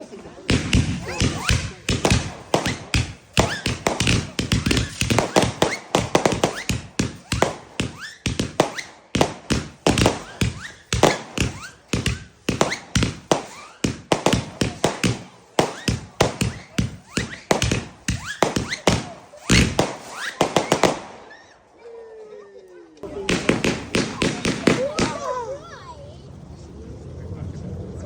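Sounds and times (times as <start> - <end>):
firework barrage bangs: 0.4 - 21.4, 23.0 - 25.6
short rising firework whistles: 0.5 - 21.7.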